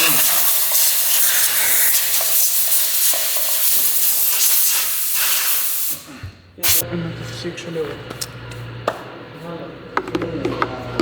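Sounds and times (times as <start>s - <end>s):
pressurised jet hissing: 0.0s - 6.0s.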